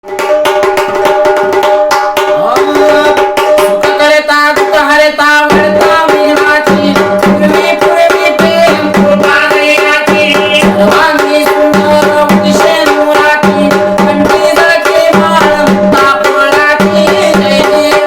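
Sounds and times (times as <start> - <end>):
stick-beaten drums: 0.0 - 18.0.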